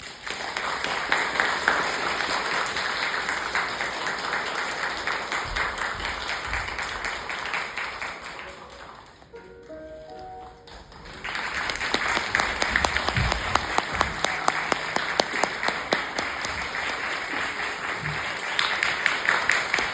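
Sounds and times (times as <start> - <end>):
audience applause: 0.0 - 19.9
soft held musical notes: 8.2 - 11.1.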